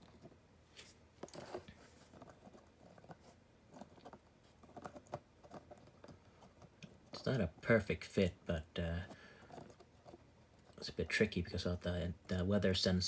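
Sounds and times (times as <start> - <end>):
small plastic parts clicking and scraping: 0.0 - 8.2, 8.9 - 10.9.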